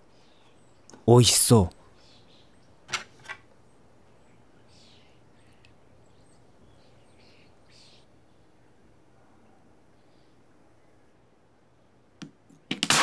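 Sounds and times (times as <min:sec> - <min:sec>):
faint bird chirps: 0:01.7 - 0:02.8, 0:03.6 - 0:11.2.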